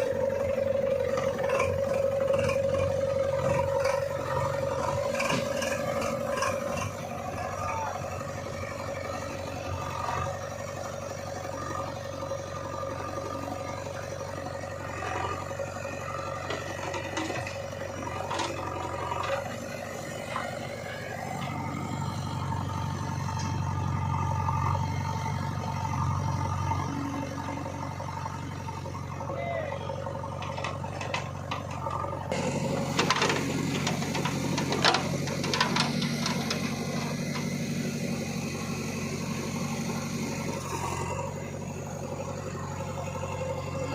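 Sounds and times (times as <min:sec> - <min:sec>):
diesel engine running: 0:00.0 - 0:43.9
knocks and rattles: 0:30.3 - 0:32.0, 0:32.8 - 0:37.5.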